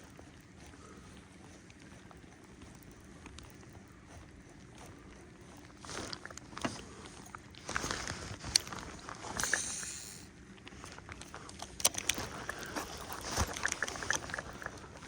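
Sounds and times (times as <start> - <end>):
fishing tackle knocks and clicks: 11.6 - 12.6.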